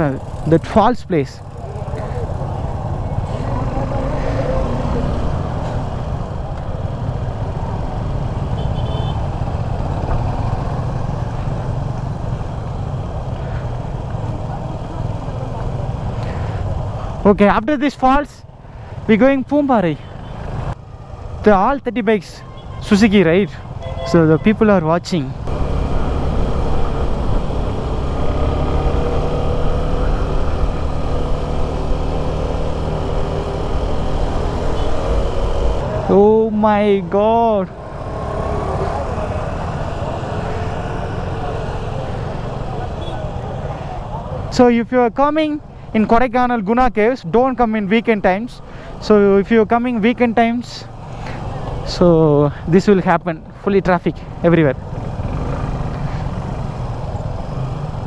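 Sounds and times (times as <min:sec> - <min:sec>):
motorcycle engine rumble: 0:00.0 - 0:17.3, 0:25.1 - 0:44.6, 0:48.6 - 0:52.7, 0:54.2 - 0:58.0
motorcycle engine running: 0:25.4 - 0:36.1, 0:54.8 - 0:58.0.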